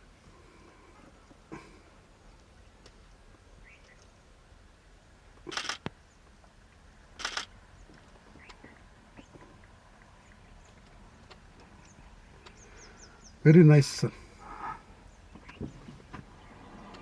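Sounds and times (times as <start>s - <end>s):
faint bird chirps: 3.5s - 4.3s, 10.2s - 13.6s, 14.4s - 16.8s
camera shutter clicks: 5.5s - 5.9s, 7.2s - 7.5s.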